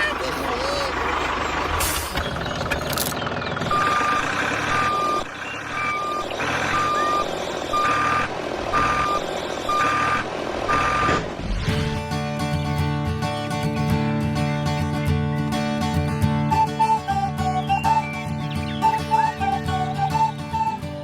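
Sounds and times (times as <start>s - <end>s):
reversing alarm beeping: 3.7s - 11.3s.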